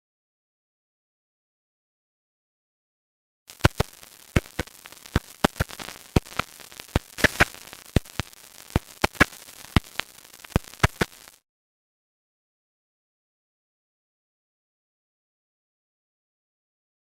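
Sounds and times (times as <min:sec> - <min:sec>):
record crackle clicks and pops: 0:03.5 - 0:11.4
steady hiss: 0:03.5 - 0:11.4.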